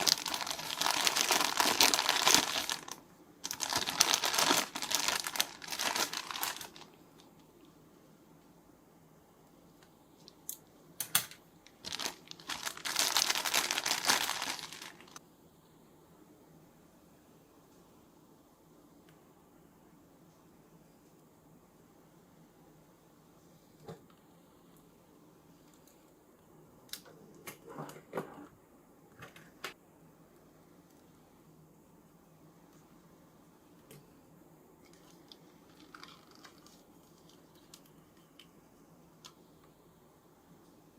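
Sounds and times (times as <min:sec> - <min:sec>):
packaging crinkling and rustling: 0:00.0 - 0:07.3, 0:11.6 - 0:15.2, 0:34.9 - 0:37.9.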